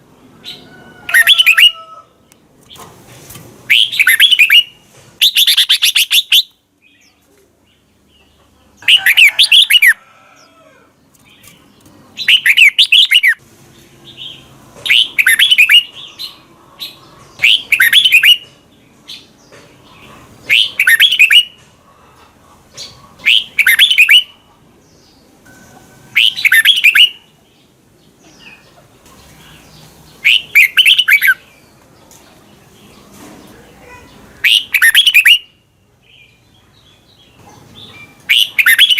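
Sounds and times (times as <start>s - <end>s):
bird singing warbled phrases: 0.2s - 2.9s, 3.7s - 13.4s, 14.0s - 21.6s, 22.7s - 25.4s, 26.1s - 38.9s.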